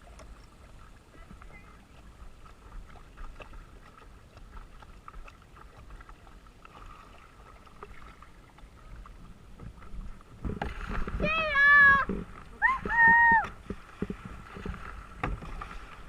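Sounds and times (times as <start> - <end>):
paddle knocks and water sounds: 0.0 - 16.0
wind rumble on microphone: 8.8 - 16.0.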